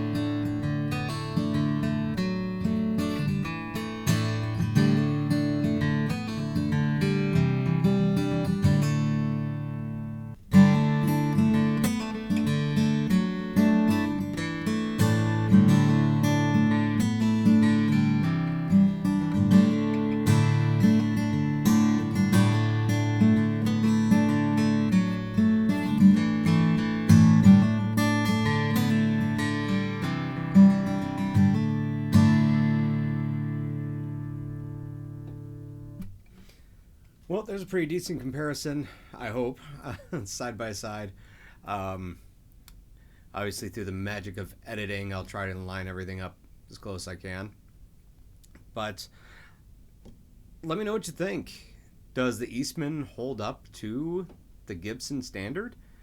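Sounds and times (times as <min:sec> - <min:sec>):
acoustic guitar strumming: 0:00.0 - 0:36.4.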